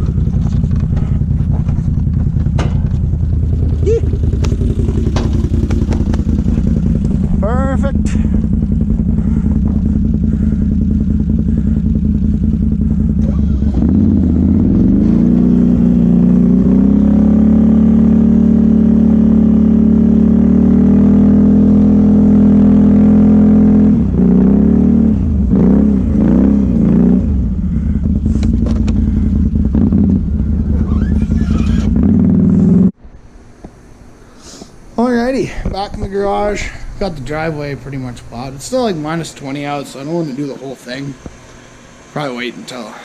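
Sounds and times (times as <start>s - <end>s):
atv engine revving: 0.0s - 33.0s.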